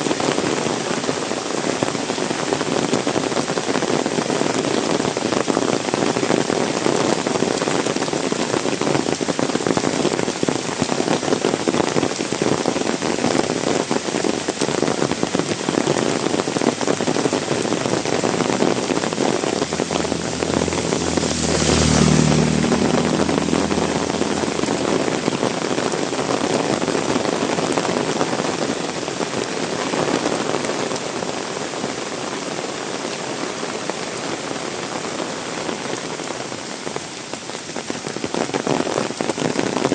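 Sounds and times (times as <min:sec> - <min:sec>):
heavy rain splashing: 0:00.0 - 0:39.9
low hum: 0:19.5 - 0:24.9.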